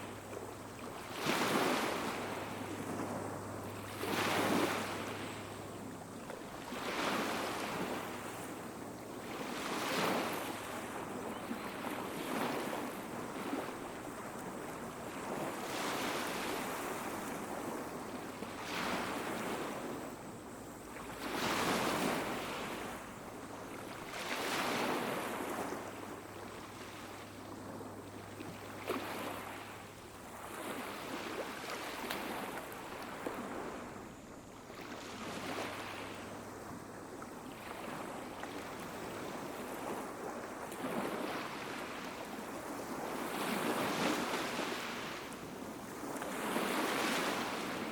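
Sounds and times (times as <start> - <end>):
small waves breaking on beach: 0.0 - 47.9.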